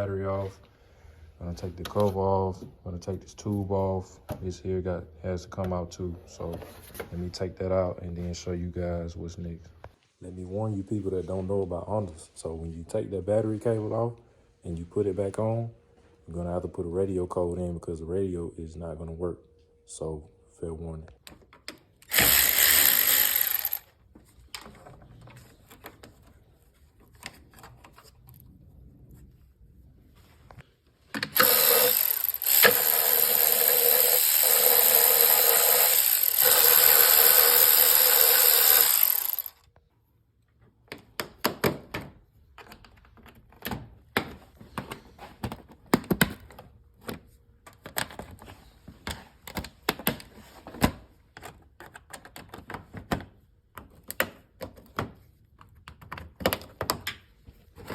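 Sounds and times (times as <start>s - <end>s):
power tool running: 22.0s - 23.9s, 31.4s - 39.6s.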